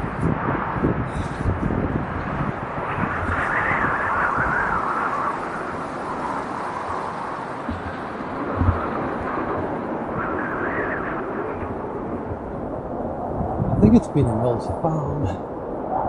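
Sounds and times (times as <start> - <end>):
wind buffeting microphone: 0.0 - 16.0
wind rushing through trees: 0.0 - 16.0.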